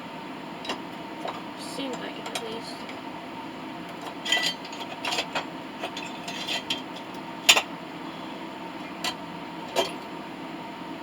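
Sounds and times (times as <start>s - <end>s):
steady mechanical hum: 0.0s - 11.0s
light metal clinks and knocks: 3.9s - 7.7s, 8.8s - 10.1s.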